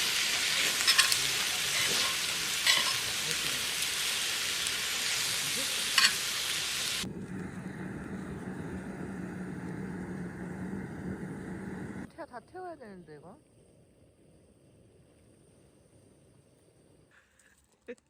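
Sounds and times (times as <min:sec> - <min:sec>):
food sizzling in a pan: 0:00.0 - 0:07.1
low hum: 0:07.0 - 0:12.1.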